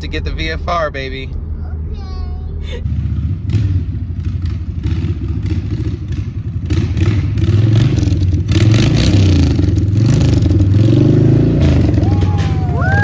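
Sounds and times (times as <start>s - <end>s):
motorcycle engine running: 2.5s - 13.0s.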